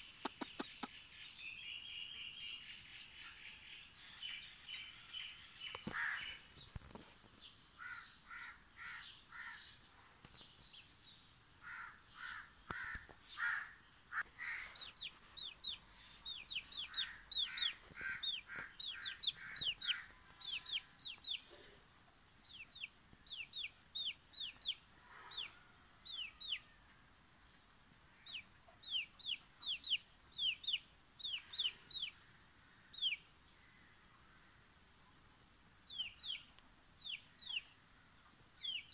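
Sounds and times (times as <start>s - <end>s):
rough clucking calls: 0.0s - 1.1s, 11.7s - 21.8s
chick peeping: 14.6s - 21.8s, 22.4s - 26.8s, 28.2s - 32.2s, 32.9s - 33.2s, 35.9s - 38.9s.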